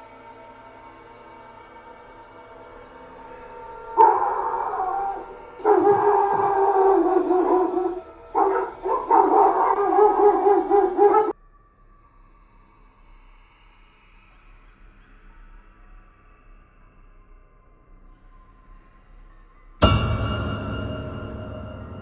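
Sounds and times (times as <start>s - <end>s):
faint background music: 0.0s - 22.0s
dogs howling: 3.2s - 11.3s.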